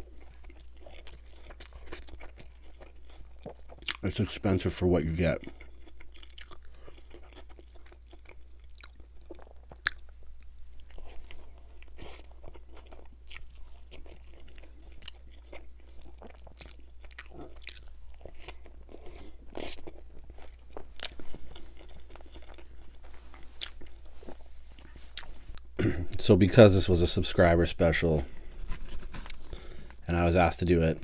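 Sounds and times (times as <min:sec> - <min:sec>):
person chewing crunchy sandwich: 0:00.0 - 0:26.2, 0:28.2 - 0:30.1.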